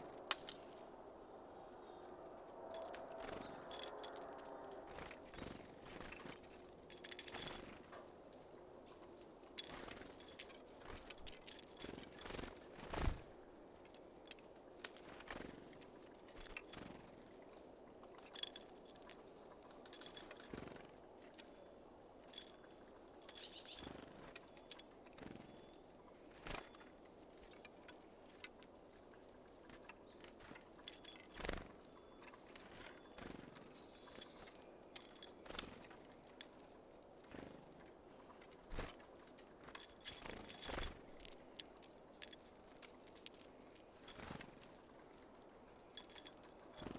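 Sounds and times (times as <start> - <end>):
birds pecking at seeds: 0.0 - 46.9
faint high bird chirps: 21.4 - 29.5, 30.1 - 35.8.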